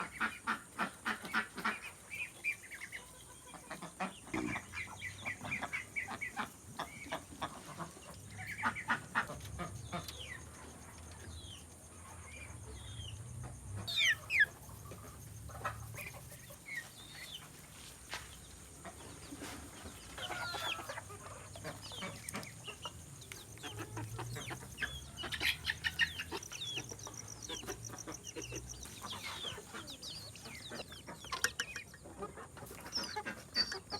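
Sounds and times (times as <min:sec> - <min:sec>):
chickens clucking: 0:00.0 - 0:33.9
chicken squawk: 0:13.8 - 0:16.9, 0:20.2 - 0:22.9, 0:23.5 - 0:33.9.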